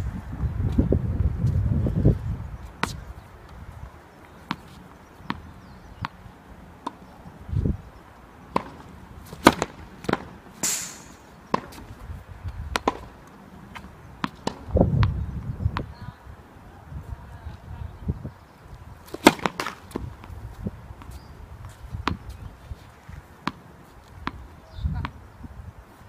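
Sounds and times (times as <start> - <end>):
tennis balls struck and bouncing: 2.7 - 3.6, 4.2 - 7.4, 8.3 - 12.0, 12.7 - 16.0, 19.0 - 22.4, 23.3 - 25.2.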